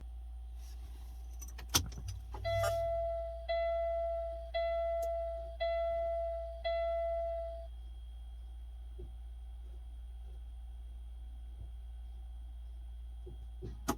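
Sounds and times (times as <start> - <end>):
vehicle warning chime dinging: 2.3 - 7.7.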